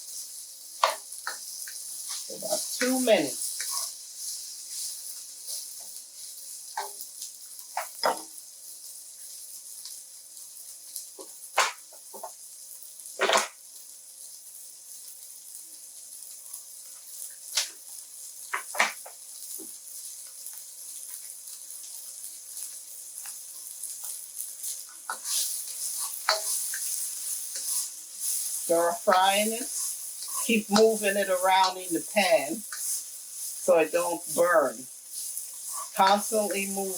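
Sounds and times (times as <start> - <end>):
pepper sizzling in a frying pan: 0.0 - 36.9
utensil scraping a pan: 24.6 - 36.9.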